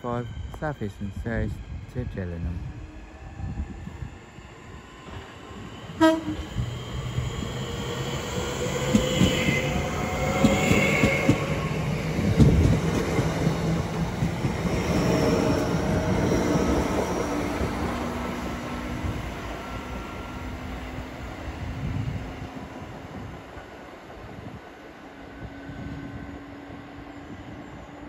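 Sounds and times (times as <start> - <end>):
train running noise: 0.0 - 28.0
train horn toot: 6.0 - 6.6.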